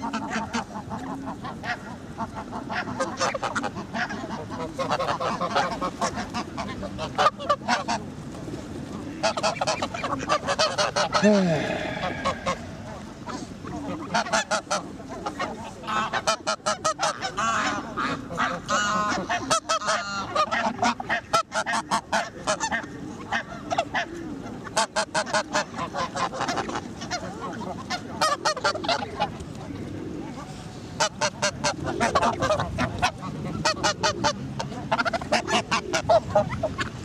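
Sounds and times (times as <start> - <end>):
geese honking: 0.0 - 8.0, 9.2 - 23.8.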